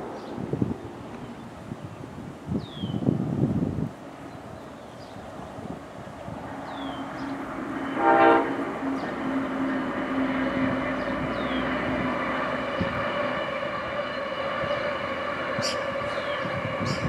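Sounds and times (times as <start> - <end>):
passenger train passing: 0.0 - 17.0
train horn blast: 7.2 - 17.0.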